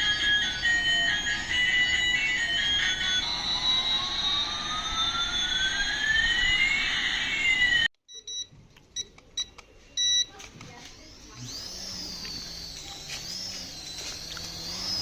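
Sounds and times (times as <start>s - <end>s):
gliding whistling tones: 0.0s - 7.9s.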